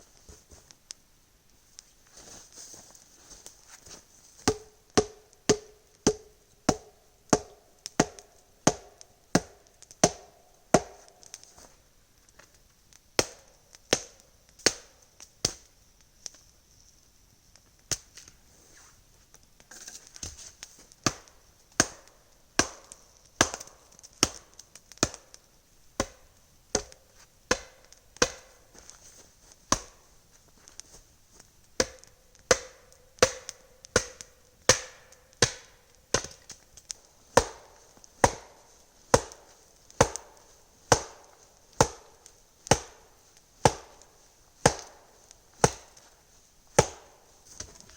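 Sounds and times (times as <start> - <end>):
sharp blows on wood: 4.5 - 11.4, 31.8 - 46.1.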